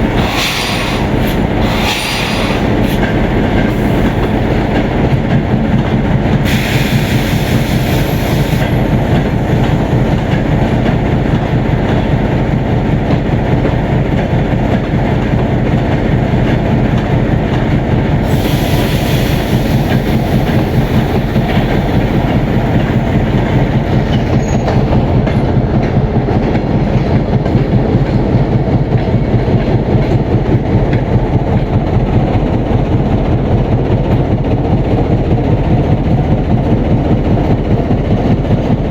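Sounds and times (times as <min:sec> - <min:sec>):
train wheels clattering over rail joints: 0:00.0 - 0:38.9
high-pitched wheel squeal: 0:24.3 - 0:24.8.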